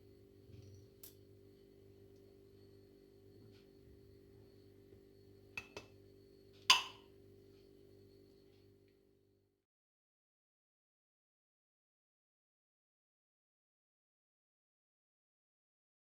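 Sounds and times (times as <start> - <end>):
faint steady hum: 0.0 - 9.6.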